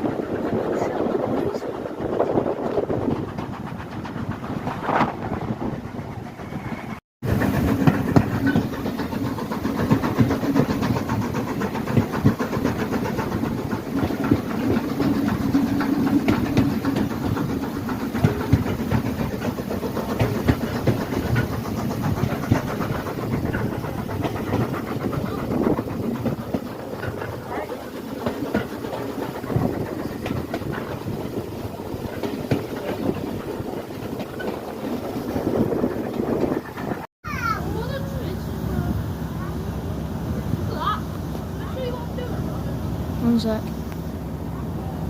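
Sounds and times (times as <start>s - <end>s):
wheels clicking over rails: 0.0s - 39.5s
train engine drone: 0.0s - 45.0s.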